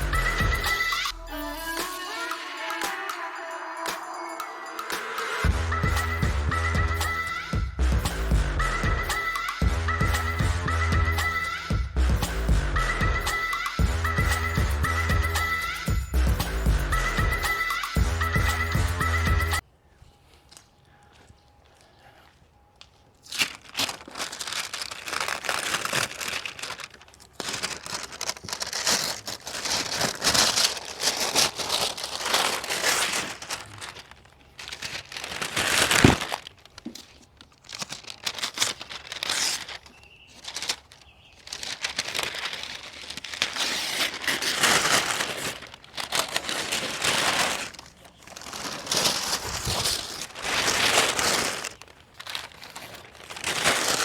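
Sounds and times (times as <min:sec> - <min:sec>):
crinkling rustling handling noise: 0:19.6 - 0:54.0.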